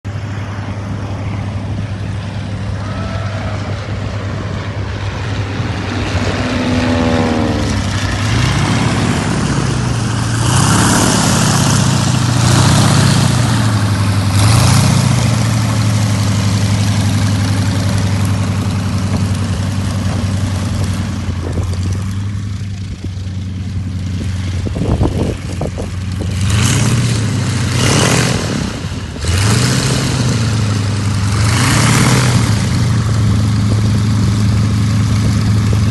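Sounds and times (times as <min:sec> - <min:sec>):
propeller planes flying past: 0:00.1 - 0:35.9
wind noise on microphone: 0:18.9 - 0:23.4, 0:24.0 - 0:27.3, 0:32.3 - 0:35.9.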